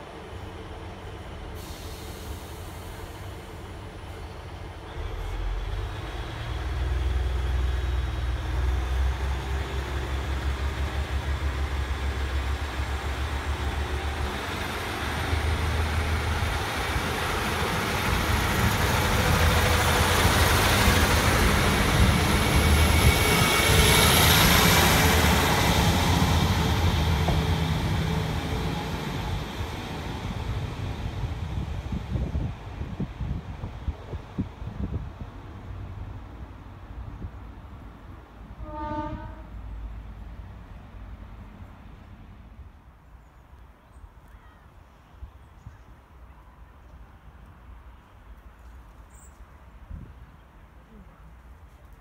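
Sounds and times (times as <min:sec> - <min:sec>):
train wheels on rails: 0:00.0 - 0:36.2
diesel train engine throbbing: 0:00.0 - 0:36.4.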